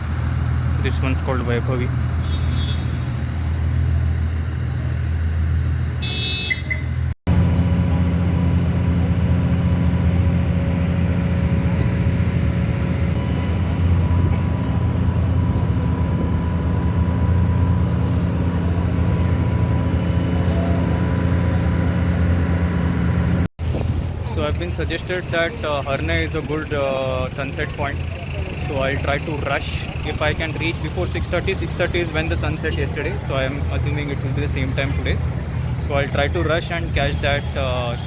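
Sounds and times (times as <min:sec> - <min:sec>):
ferry engine drone: 0:00.0 - 0:38.0.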